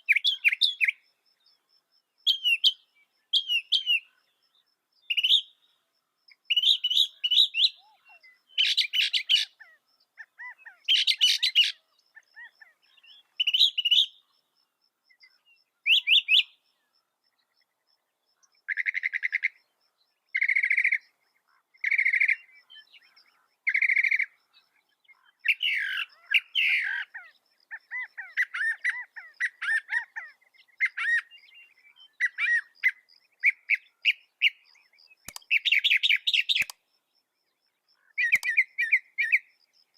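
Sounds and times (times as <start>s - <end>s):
mockingbird singing: 0.0s - 1.0s, 2.2s - 4.2s, 5.0s - 5.7s, 6.4s - 14.3s, 15.2s - 16.6s, 20.4s - 36.8s, 38.0s - 39.5s.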